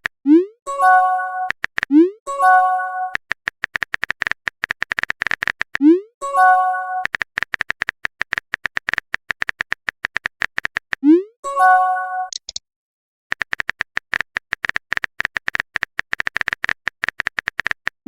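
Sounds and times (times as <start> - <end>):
rapid clicking blips: 0.0 - 6.1, 6.9 - 11.3, 12.3 - 12.6, 13.3 - 18.0
electronic chime chord: 6.2 - 7.0.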